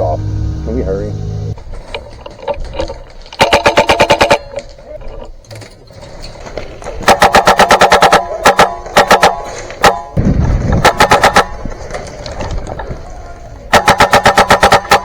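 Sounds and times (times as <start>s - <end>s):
low rumble: 0.0s - 1.6s
airsoft gun firing bursts: 3.4s - 4.6s, 7.0s - 10.2s, 10.8s - 11.6s, 13.7s - 15.0s.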